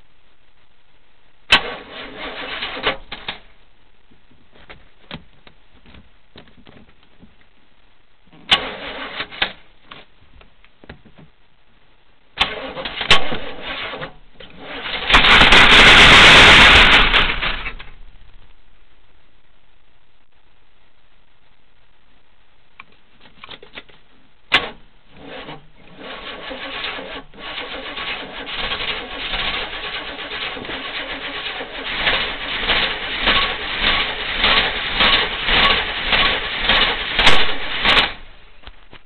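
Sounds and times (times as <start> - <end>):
starter motor cranking engine: 1.5 - 3.3, 8.5 - 9.6, 12.4 - 17.8, 24.6 - 38.3.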